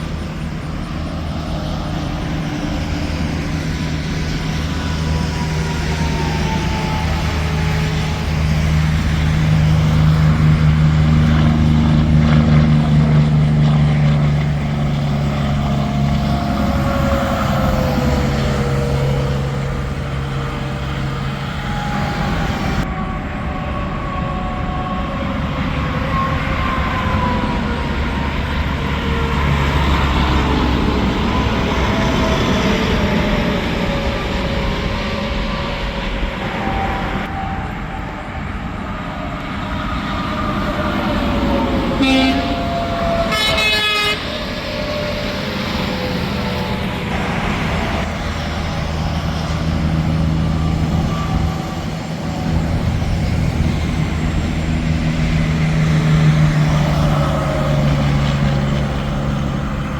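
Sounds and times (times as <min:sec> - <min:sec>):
diesel engine drone: 0:00.0 - 0:59.9
tyre and road noise: 0:00.0 - 0:59.9
tyre whine of passing vehicles: 0:00.0 - 0:59.9.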